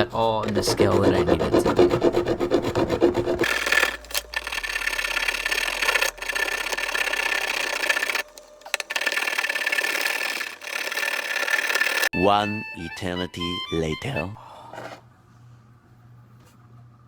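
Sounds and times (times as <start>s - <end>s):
hand saw rasping through pipe: 0.4s - 8.2s, 8.8s - 12.1s.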